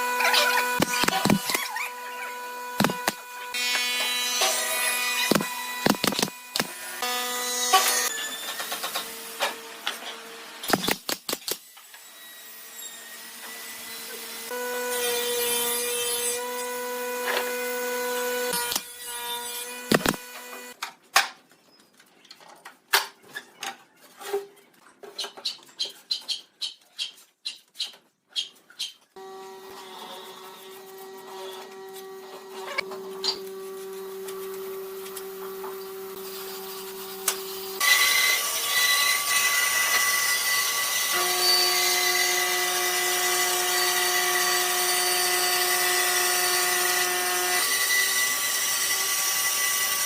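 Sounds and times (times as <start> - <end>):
electric tool motor humming: 0.0 - 8.1, 19.7 - 20.8.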